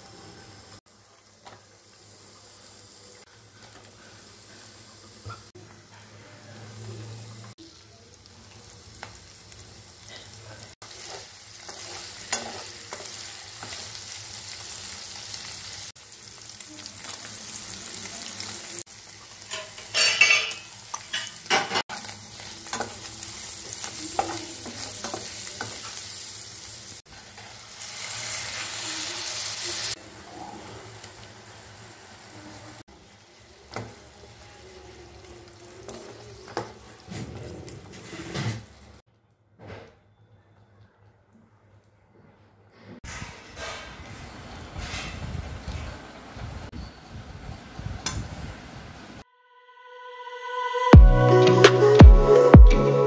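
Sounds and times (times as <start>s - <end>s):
vegetables sizzling in oil: 0.0s - 39.0s
wooden spatula scraping a pan: 36.7s - 38.8s.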